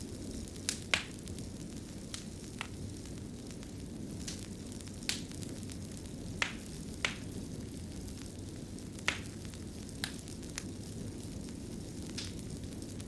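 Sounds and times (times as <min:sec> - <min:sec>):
fire crackles and pops: 0:00.0 - 0:13.0
wood fire rumbling: 0:00.0 - 0:13.0.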